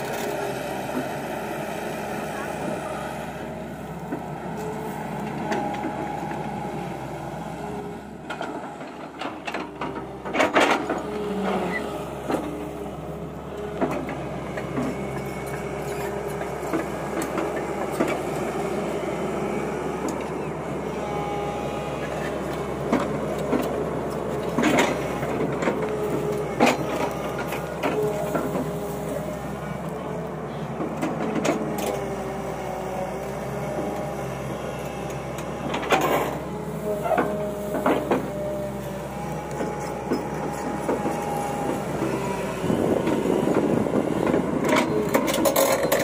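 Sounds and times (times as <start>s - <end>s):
excavator engine and hydraulics: 0.0s - 46.0s.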